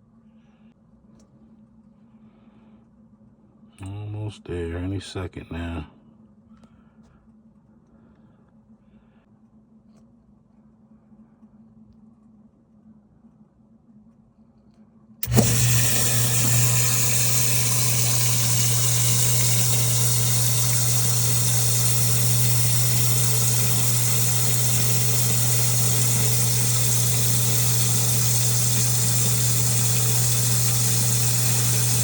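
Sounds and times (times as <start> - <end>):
sump pump motor hum: 15.2 - 32.0.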